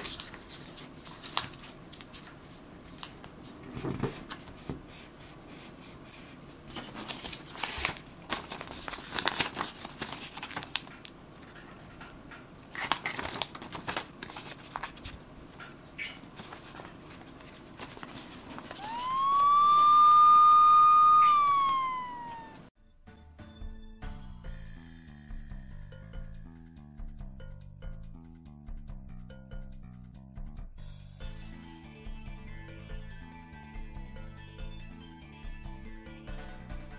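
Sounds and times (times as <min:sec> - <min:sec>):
paper crinkling and rustling: 0:00.0 - 0:04.7, 0:05.5 - 0:11.6, 0:12.7 - 0:15.2, 0:16.3 - 0:19.2
siren wail: 0:18.8 - 0:22.7.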